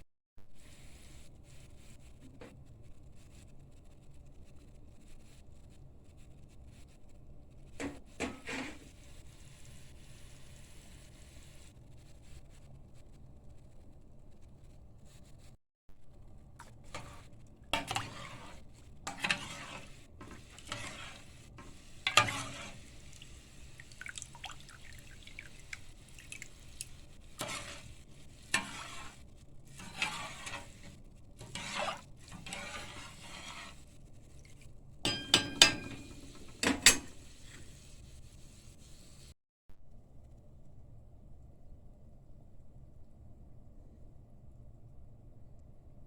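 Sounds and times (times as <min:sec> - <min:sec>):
utensil scraping cookware: 0:07.8 - 0:09.0, 0:16.6 - 0:38.0.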